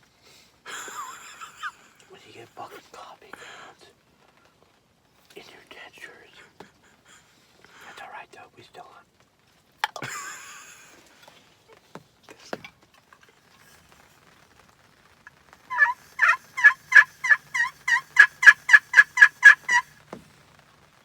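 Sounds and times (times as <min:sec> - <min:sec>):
turkey yelps: 0:15.6 - 0:20.0.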